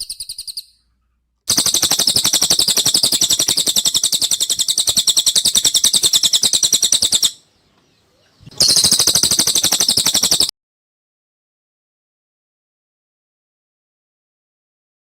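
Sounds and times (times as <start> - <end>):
rapid high bird chirps: 0.0 - 0.8, 1.5 - 7.6, 8.2 - 10.5.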